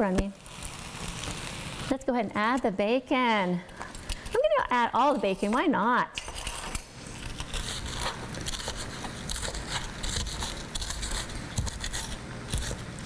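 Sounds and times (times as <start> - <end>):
fried rice sizzling in a wok: 0.0 - 1.9.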